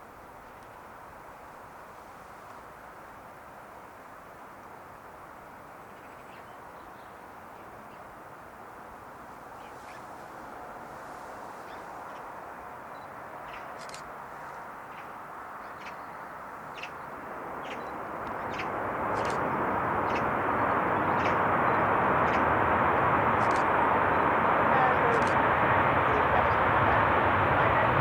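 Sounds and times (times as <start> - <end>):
jet engine rush: 9.2 - 28.0.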